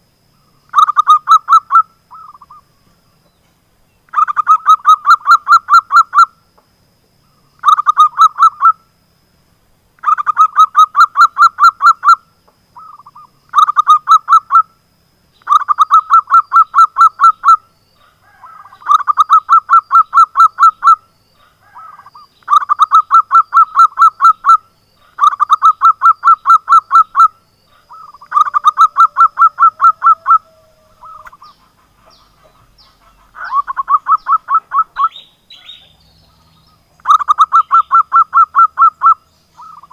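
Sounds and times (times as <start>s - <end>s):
dove cooing: 15.5s - 39.9s.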